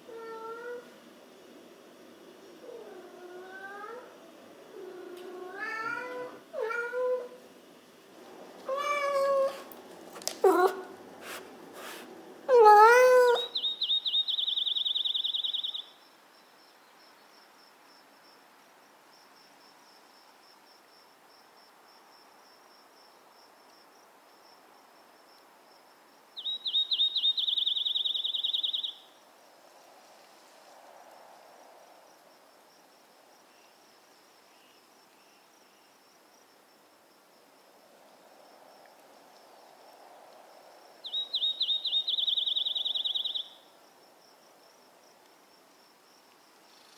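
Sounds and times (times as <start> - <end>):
faint steady cricket trill: 0.0 - 46.9
loud fast-pulsed cricket trill: 37.4 - 44.8.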